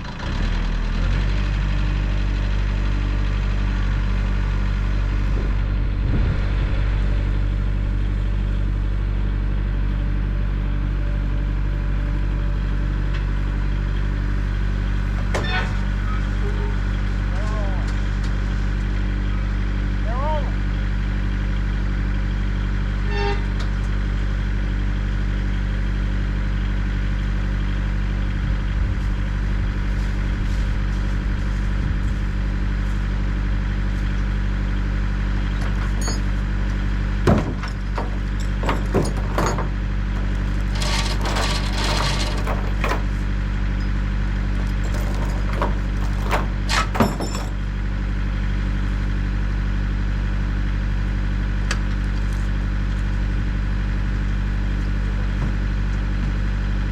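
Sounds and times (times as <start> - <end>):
tractor engine under load: 0.0 - 19.9, 21.3 - 49.6
metal clanks and rattles: 35.5 - 47.8.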